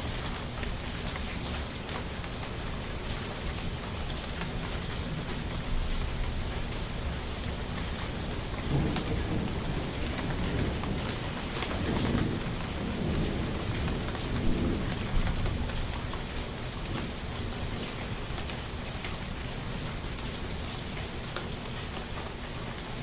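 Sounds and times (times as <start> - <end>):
rain hiss: 0.0 - 23.0
thunder rumbling: 7.8 - 18.9.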